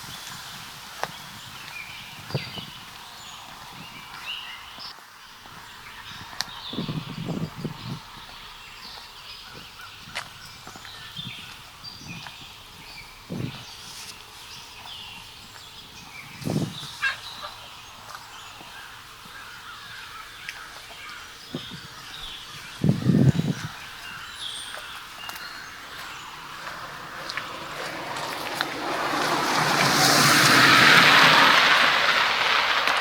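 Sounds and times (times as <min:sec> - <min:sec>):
small birds chirping: 0:00.0 - 0:31.1
rushing noise: 0:24.6 - 0:33.0.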